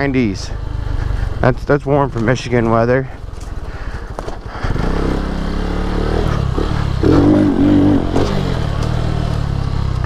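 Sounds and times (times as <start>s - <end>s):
motorcycle engine revving: 2.1s - 10.0s.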